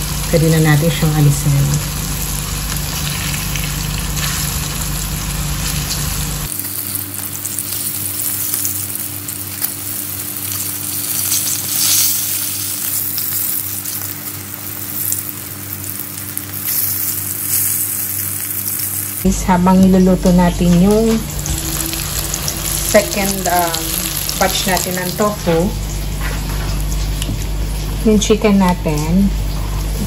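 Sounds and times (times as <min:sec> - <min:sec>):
tofu sizzling in hot oil: 0:01.6 - 0:19.3, 0:21.4 - 0:25.7
low hum: 0:19.2 - 0:30.0.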